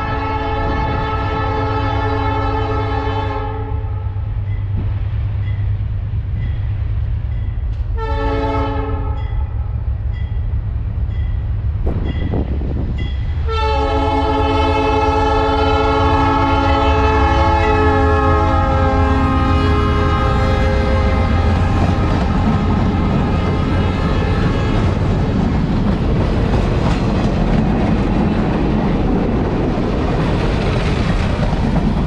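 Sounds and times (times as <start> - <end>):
locomotive air horn blasts: 0.0 - 4.2, 8.0 - 9.4, 13.4 - 24.9
diesel locomotives rumbling: 0.0 - 32.0.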